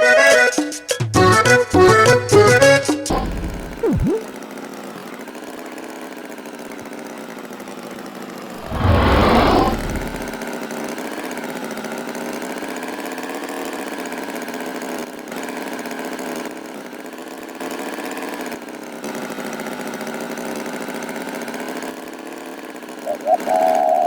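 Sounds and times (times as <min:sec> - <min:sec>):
loud brief burst of noise: 0:08.6 - 0:10.4.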